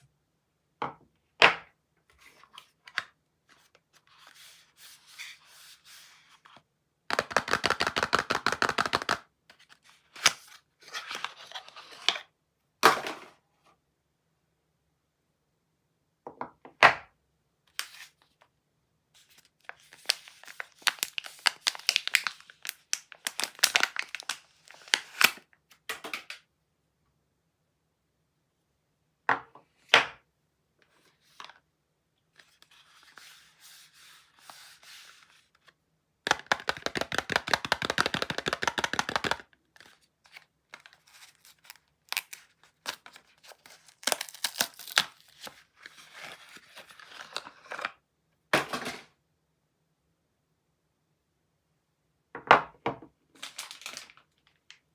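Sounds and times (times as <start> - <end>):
wrapper tearing and crinkling: 19.9 - 25.4, 40.8 - 47.4, 53.4 - 54.4.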